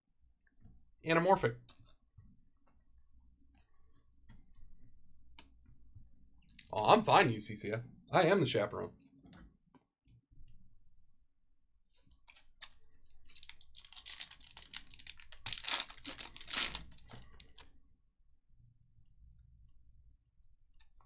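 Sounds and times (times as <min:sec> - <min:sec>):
foil wrapper tearing and crinkling: 0:12.3 - 0:17.6.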